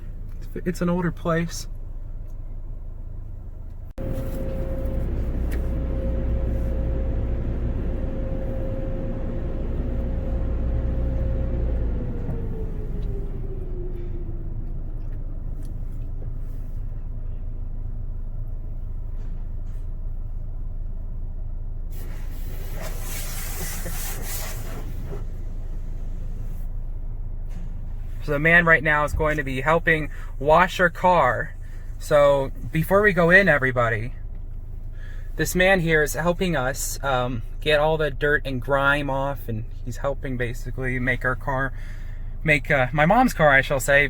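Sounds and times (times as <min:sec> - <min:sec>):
machinery low rumble: 0:00.0 - 0:44.0
motor hum: 0:04.0 - 0:15.2
water spraying hiss: 0:22.0 - 0:25.0.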